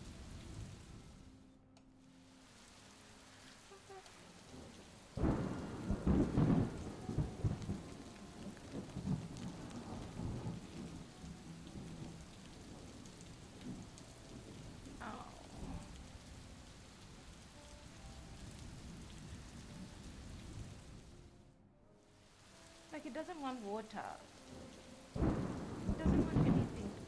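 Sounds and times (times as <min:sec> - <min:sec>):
rain falling: 0:00.0 - 0:27.0
thunder rumbling: 0:04.4 - 0:17.4, 0:22.9 - 0:27.0.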